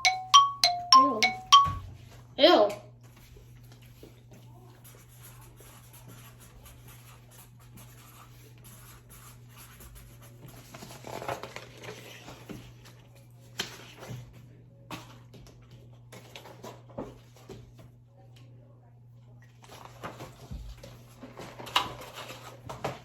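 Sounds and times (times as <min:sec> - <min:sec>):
rustling of food and paper: 0:03.0 - 0:17.9, 0:19.6 - 0:23.0.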